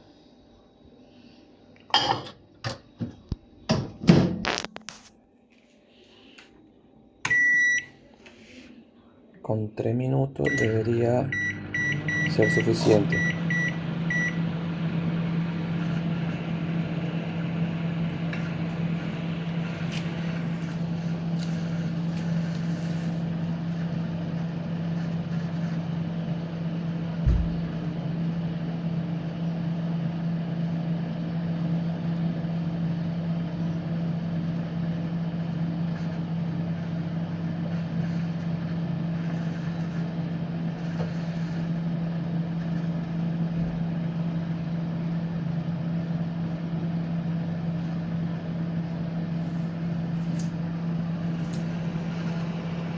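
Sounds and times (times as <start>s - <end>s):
microwave oven humming: 0.0s - 52.9s
keypad beeps: 7.3s - 7.9s, 10.5s - 14.4s
short thump: 27.2s - 27.7s.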